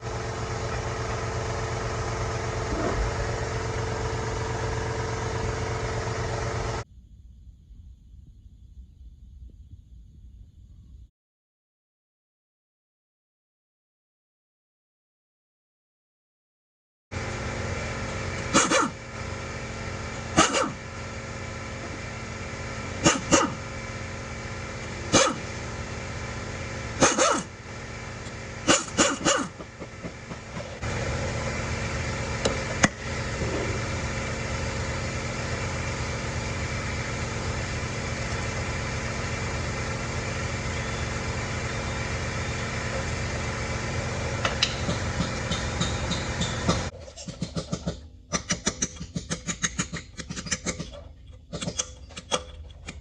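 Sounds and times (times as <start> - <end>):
engine idling: 0.0 - 6.9, 17.1 - 53.0
background hum: 6.7 - 11.1
dog barking: 20.4 - 20.8, 23.0 - 23.6, 25.1 - 25.4, 27.0 - 27.5, 28.7 - 29.5.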